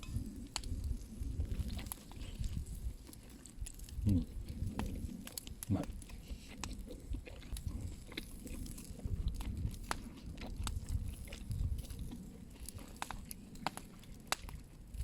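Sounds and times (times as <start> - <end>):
person chewing food: 0.0 - 15.0
sharp mouth clicks: 3.6 - 14.6.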